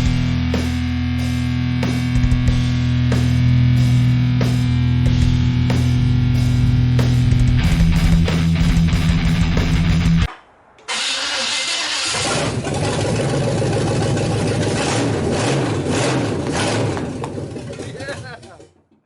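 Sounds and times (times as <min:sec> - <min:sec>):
heavy metal music: 0:00.0 - 0:12.2
truck engine cranking and running: 0:10.8 - 0:19.0.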